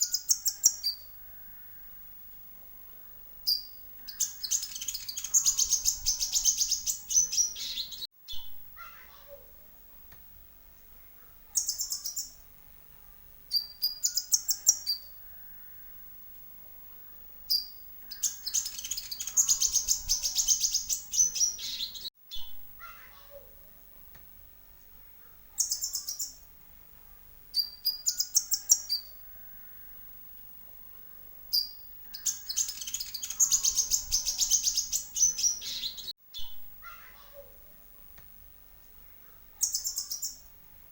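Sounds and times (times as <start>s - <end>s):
bird twittering trills: 3.5s - 8.5s, 11.6s - 12.4s, 13.5s - 15.8s, 17.5s - 22.5s, 25.5s - 26.4s, 31.5s - 36.6s, 39.6s - 40.5s.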